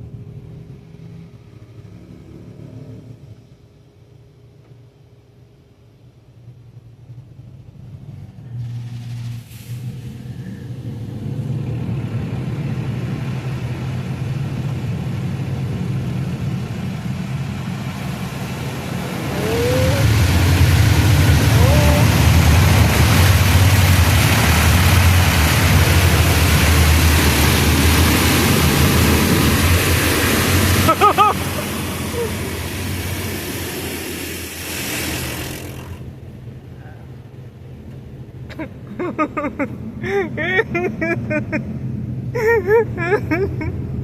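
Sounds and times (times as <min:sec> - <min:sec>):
water jets spraying on truck: 0:08.5 - 0:38.3
truck engine idling: 0:10.0 - 0:40.2.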